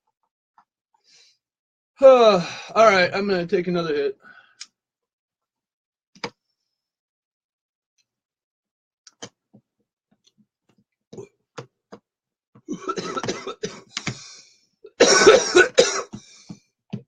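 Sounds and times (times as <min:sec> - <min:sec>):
man coughing: 0:12.7 - 0:13.9, 0:15.0 - 0:16.1.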